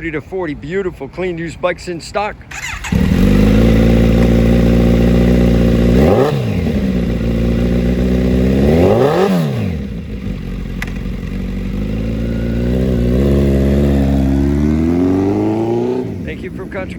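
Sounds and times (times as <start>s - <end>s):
motorcycle engine idling: 2.5s - 9.0s, 9.6s - 15.5s
motorcycle engine revving: 2.5s - 16.9s.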